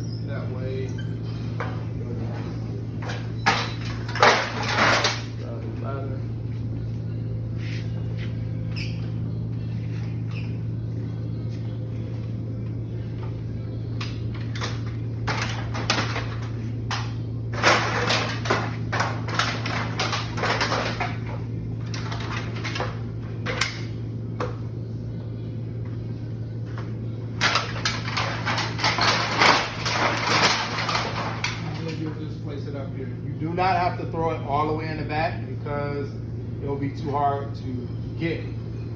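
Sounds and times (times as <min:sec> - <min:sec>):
steady low hum: 0:00.0 - 0:38.9
ladder clattering: 0:01.5 - 0:05.4, 0:14.3 - 0:24.6, 0:26.7 - 0:32.2.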